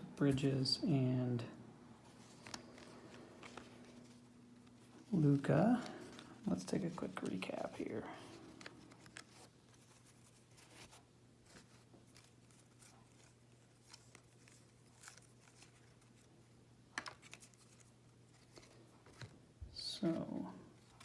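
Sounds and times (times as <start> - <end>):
trading cards clicking and rustling: 2.1 - 16.3, 16.9 - 19.4.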